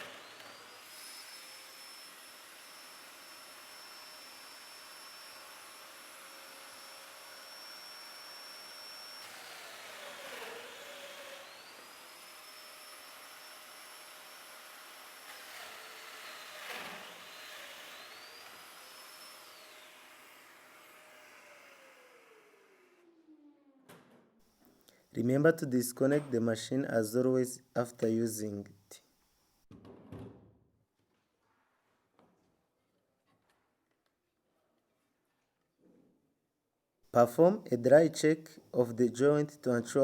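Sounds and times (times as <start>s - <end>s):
power tool motor whining: 0.0s - 23.4s.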